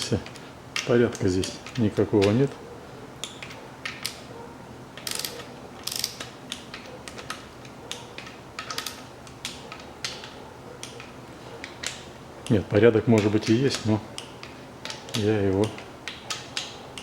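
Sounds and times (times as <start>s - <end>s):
torque wrench ratchet clicking: 5.0s - 6.3s.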